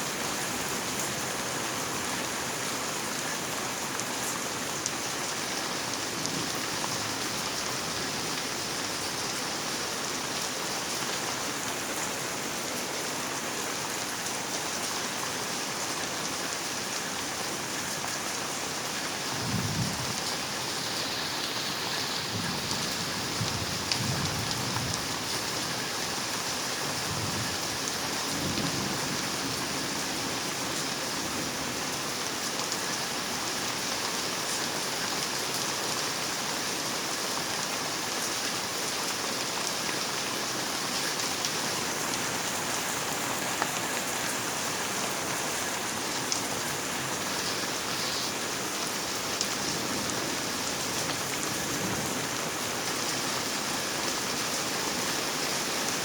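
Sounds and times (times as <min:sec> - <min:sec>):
steady rain falling: 0:00.0 - 0:56.0
low rumble of thunder: 0:19.4 - 0:20.4, 0:22.2 - 0:25.3.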